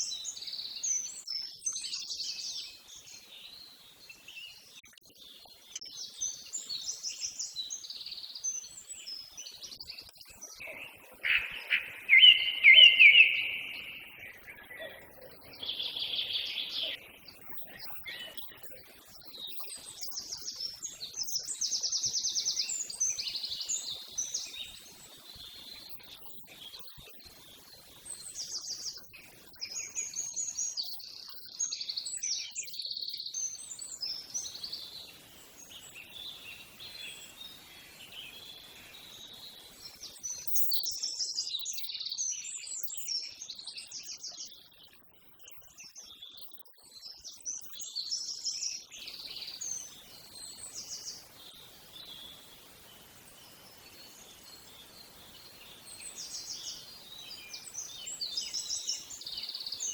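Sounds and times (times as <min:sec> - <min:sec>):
small birds trilling: 0:05.7 - 0:24.8.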